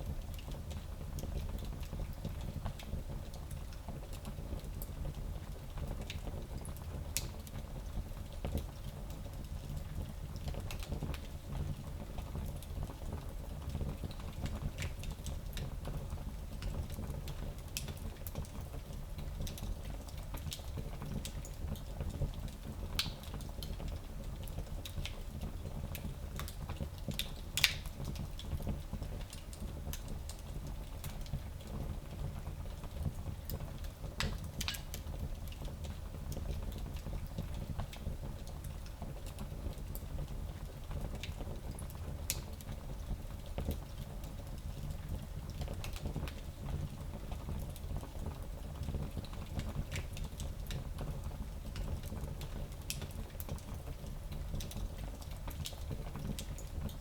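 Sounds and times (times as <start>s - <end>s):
fire crackling and popping: 8.4s - 57.0s.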